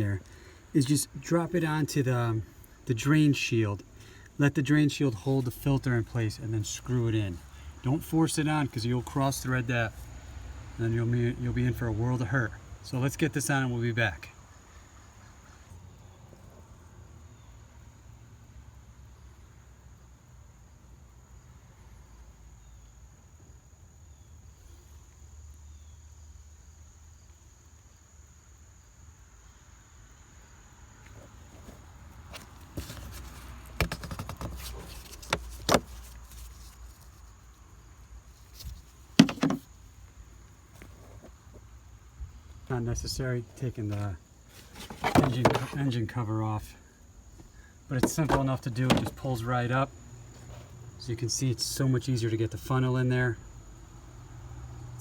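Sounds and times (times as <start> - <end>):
crickets chirring: 0.0 - 55.0
knocks and clunks on a car: 39.2 - 39.7, 47.4 - 49.2.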